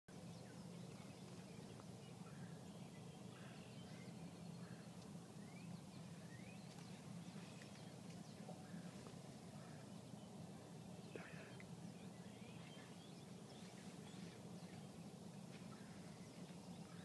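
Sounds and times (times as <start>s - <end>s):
low steady hum: 0.1s - 17.0s
birds chirping and whistling: 2.9s - 8.4s, 11.1s - 15.1s.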